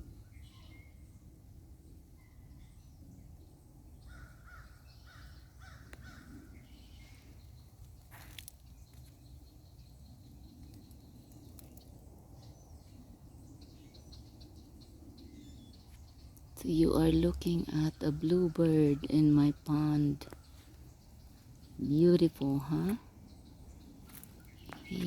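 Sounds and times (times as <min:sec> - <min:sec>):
birds calling: 0:04.0 - 0:25.0
steady low rumble: 0:06.3 - 0:25.0.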